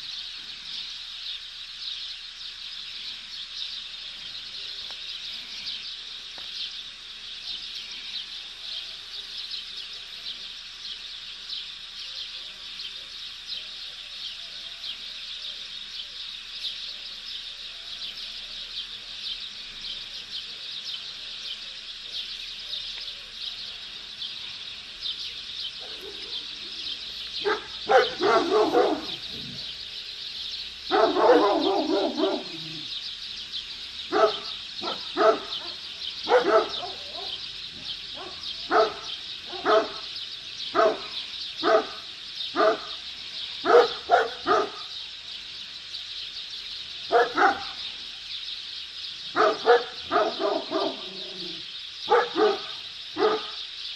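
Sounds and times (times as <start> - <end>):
dogs barking: 25.8 - 26.6, 27.3 - 29.8, 30.9 - 32.9, 34.1 - 43.0, 43.6 - 44.9, 47.1 - 47.8, 49.3 - 53.6.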